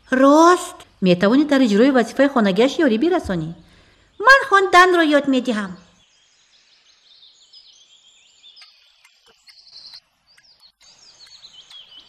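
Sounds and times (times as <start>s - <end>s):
small birds chirping: 0.0s - 12.0s
faint ticks: 8.6s - 12.0s.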